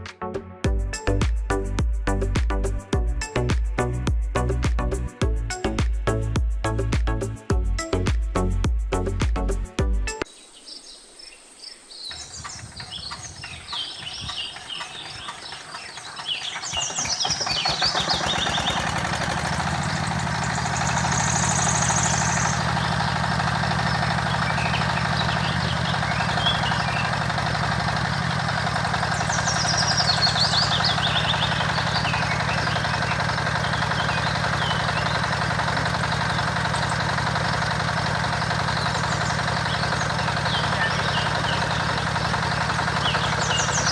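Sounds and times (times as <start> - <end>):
birds chirping: 10.2 - 43.9
small gasoline pump engine: 12.2 - 43.9.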